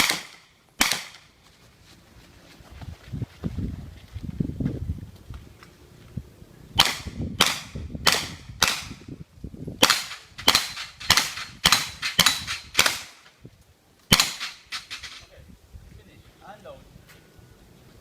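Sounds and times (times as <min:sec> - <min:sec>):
gunshots: 0:00.0 - 0:01.3, 0:06.8 - 0:09.0, 0:09.8 - 0:13.2, 0:14.1 - 0:15.1.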